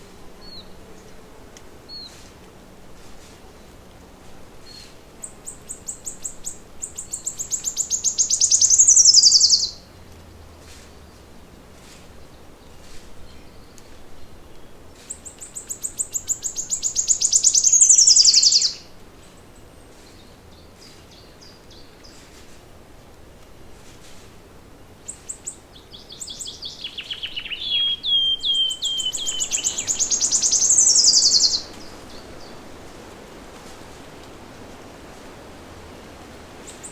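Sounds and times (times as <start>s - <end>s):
faint bird chirps: 4.7s - 9.8s, 15.1s - 18.8s, 25.1s - 32.6s
songbird trilled song: 4.7s - 9.9s, 12.7s - 18.9s, 25.1s - 32.6s.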